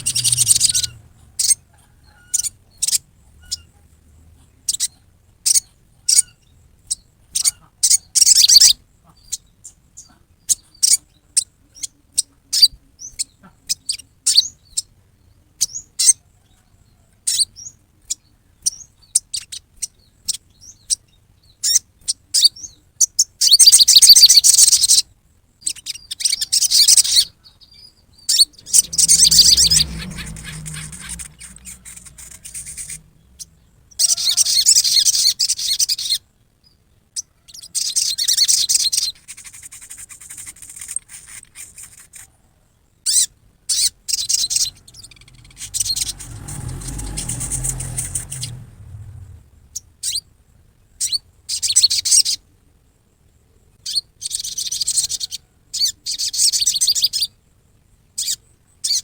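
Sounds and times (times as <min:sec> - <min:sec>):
low rumble: 0:00.0 - 0:01.5, 0:28.5 - 0:34.2, 0:44.4 - 0:50.2
bird chattering calls: 0:00.0 - 0:03.7, 0:28.3 - 0:36.2, 0:43.1 - 0:50.2.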